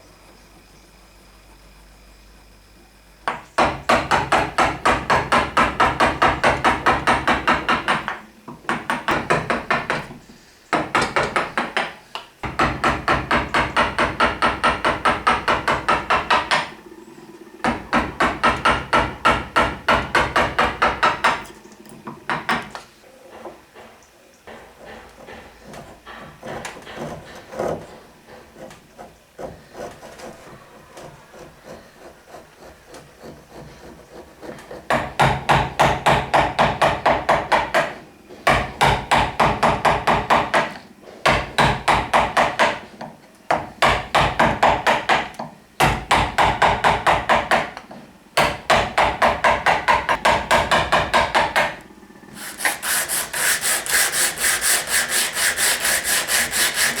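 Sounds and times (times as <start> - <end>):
hand tool strokes on wood: 24.8 - 34.9, 52.3 - 57.0.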